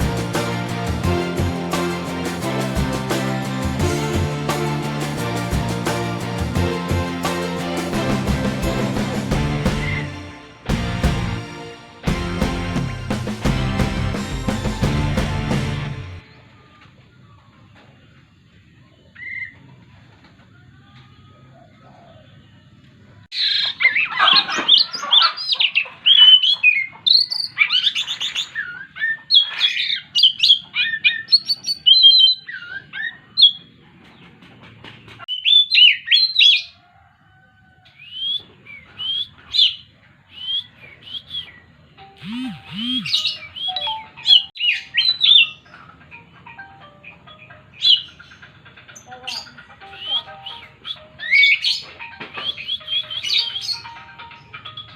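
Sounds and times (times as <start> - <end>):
bird singing whistles and chirps: 38.0 - 41.7, 42.4 - 45.6.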